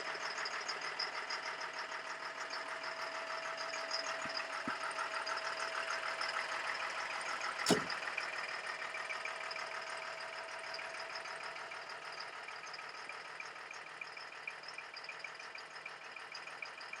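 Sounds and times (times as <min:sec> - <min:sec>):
diesel truck engine idling: 0:00.0 - 0:16.9
sharp knock: 0:07.7 - 0:08.0.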